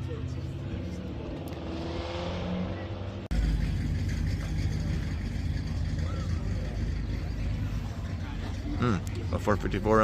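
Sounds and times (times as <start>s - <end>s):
car engine idling: 2.8s - 10.0s.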